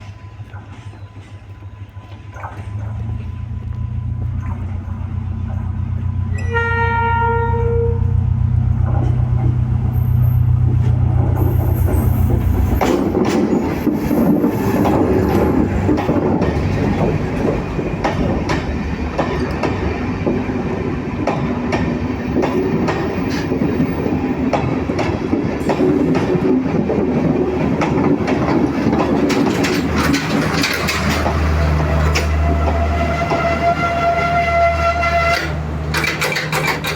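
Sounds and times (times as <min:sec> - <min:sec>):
diesel train engine rumble: 0:00.0 - 0:36.9
train horn blast: 0:06.3 - 0:08.3, 0:31.6 - 0:35.7
train wheels clattering over rail joints: 0:08.8 - 0:36.9.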